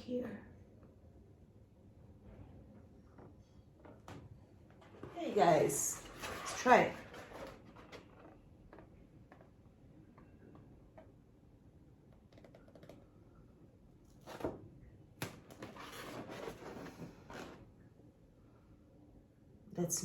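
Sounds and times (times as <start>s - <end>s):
balloon rustling and rubbing on canvas: 15.6s - 17.6s.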